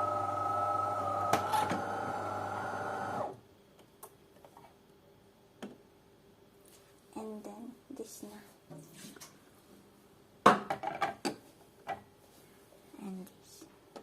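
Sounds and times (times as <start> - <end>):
coffee machine pump humming: 0.0 - 3.3.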